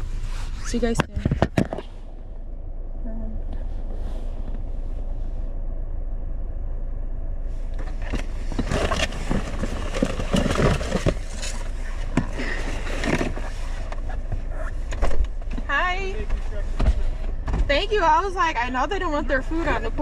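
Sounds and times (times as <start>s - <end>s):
car engine idling: 0.0s - 20.0s
outside noise: 0.0s - 20.0s
crunching and rustling: 7.7s - 14.9s.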